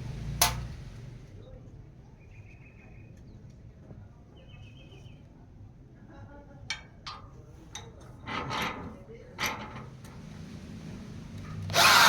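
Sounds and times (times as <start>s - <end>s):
faint bird chirping: 1.4s - 3.5s, 4.3s - 5.4s.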